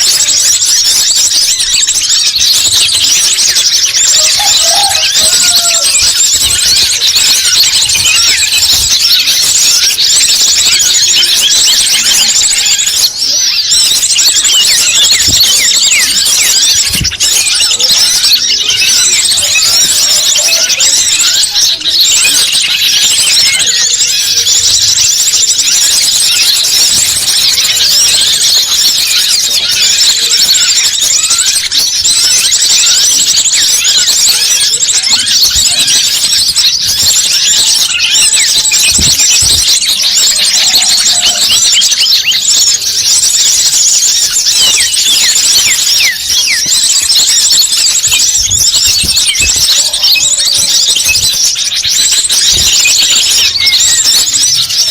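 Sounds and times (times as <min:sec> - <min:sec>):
chorus of bird chirps: 0:00.0 - 0:54.9.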